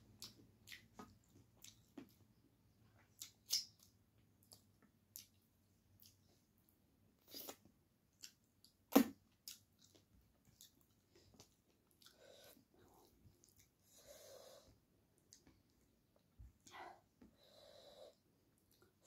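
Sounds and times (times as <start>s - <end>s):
wet chewing and lip smacks: 0.1s - 2.2s, 3.0s - 6.4s, 7.3s - 13.8s.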